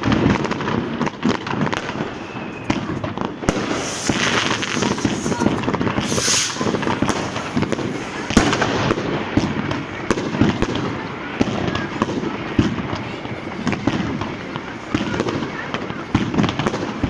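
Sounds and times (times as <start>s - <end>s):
firecrackers crackling: 0.0s - 17.0s
fireworks bangs and pops: 0.0s - 17.0s.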